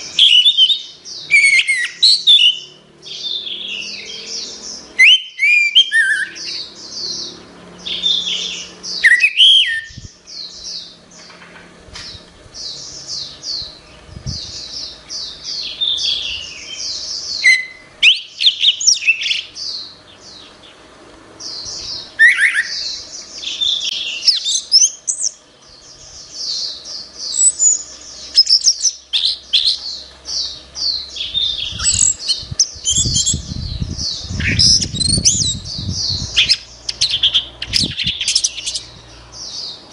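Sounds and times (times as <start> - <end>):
low rumbling noise: 30.0 - 39.9.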